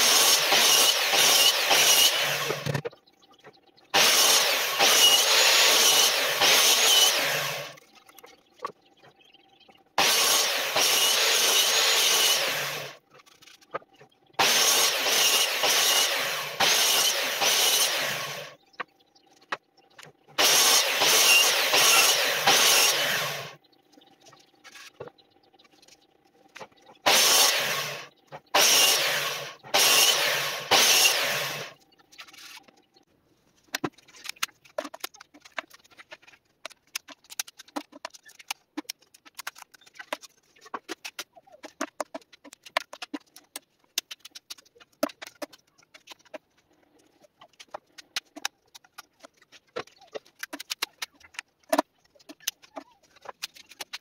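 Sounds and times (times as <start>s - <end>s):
mitre saw cutting wood: 0.0s - 2.8s, 4.0s - 7.8s, 10.0s - 13.0s, 14.4s - 18.5s, 20.4s - 23.6s, 27.0s - 31.7s
saw motor humming: 0.0s - 2.8s, 4.0s - 7.8s, 10.0s - 13.0s, 14.4s - 18.6s, 20.4s - 23.6s, 27.0s - 31.8s.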